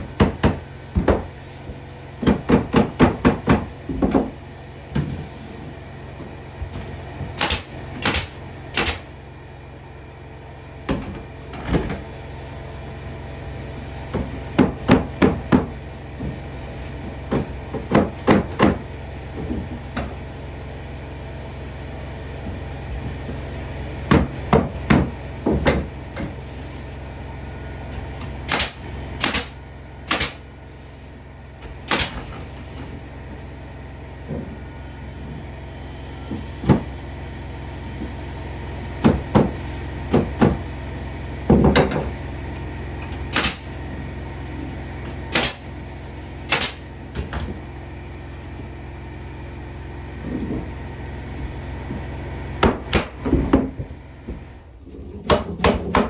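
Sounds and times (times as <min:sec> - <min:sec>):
steady low hum: 0:00.0 - 0:56.0
hammer striking wood: 0:00.1 - 0:04.4, 0:07.4 - 0:09.1, 0:14.1 - 0:16.4, 0:17.1 - 0:20.2, 0:24.1 - 0:26.4, 0:28.5 - 0:30.4, 0:36.3 - 0:37.0, 0:39.0 - 0:40.7, 0:41.4 - 0:42.2, 0:43.3 - 0:43.7, 0:45.3 - 0:45.7, 0:46.5 - 0:47.5, 0:52.6 - 0:54.5, 0:55.2 - 0:56.0.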